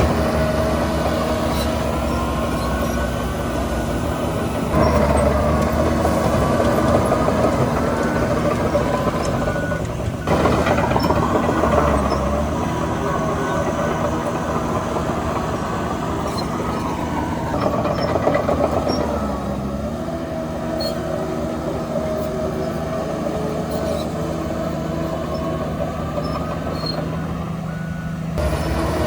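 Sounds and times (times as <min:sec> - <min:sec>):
diesel machinery running under load: 0:00.0 - 0:29.0
faint high squeaks: 0:01.2 - 0:03.2, 0:16.2 - 0:19.3, 0:20.7 - 0:21.1, 0:23.6 - 0:28.8.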